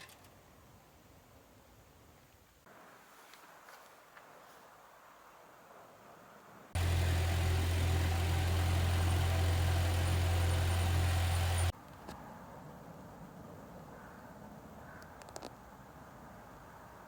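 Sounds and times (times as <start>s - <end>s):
engine idling: 6.8s - 11.7s.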